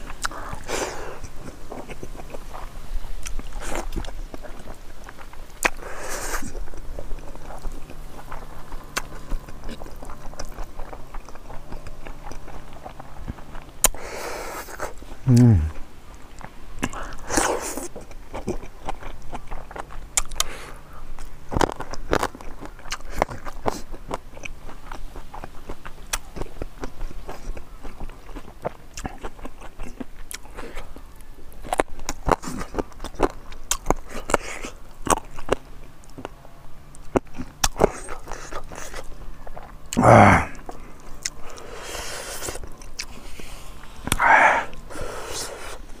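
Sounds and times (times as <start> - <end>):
close chewing and crunching: 0.0 - 46.0
short vocal sound: 15.2 - 15.8, 40.0 - 40.6, 44.0 - 44.8.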